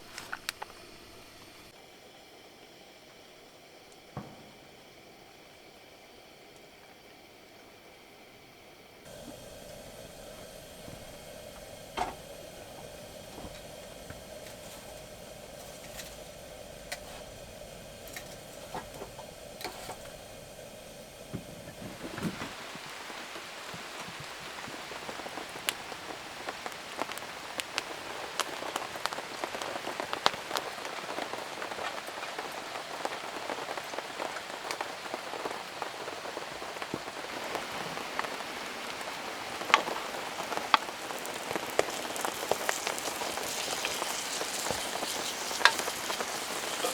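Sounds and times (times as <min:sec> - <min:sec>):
raindrops ticking on a surface: 0:00.0 - 0:01.8, 0:09.1 - 0:46.9
steady hum: 0:00.0 - 0:06.7, 0:08.8 - 0:23.2
heavy rain falling: 0:09.1 - 0:46.9.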